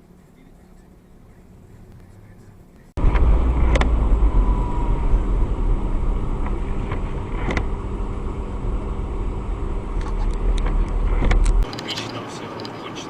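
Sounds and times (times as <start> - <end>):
car engine and tyres rumbling: 0.0 - 13.0
sharp clicks or knocks: 3.1 - 3.9.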